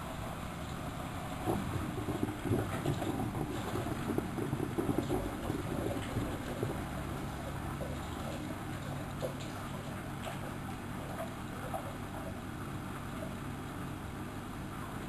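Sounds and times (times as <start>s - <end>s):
washing machine motor hum: 0.0s - 15.0s
drum sloshing and knocking: 0.8s - 12.4s.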